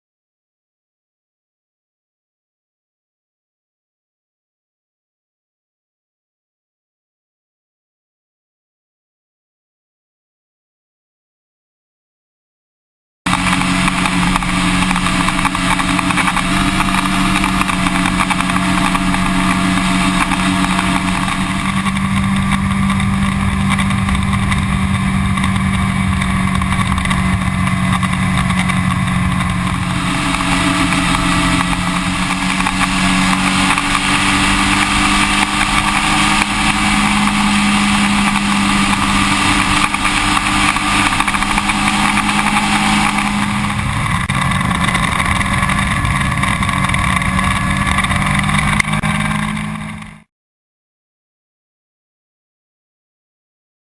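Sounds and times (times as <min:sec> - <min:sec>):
wind rushing noise: 0:13.3 - 0:50.0
motorcycle engine cruising: 0:13.3 - 0:50.3.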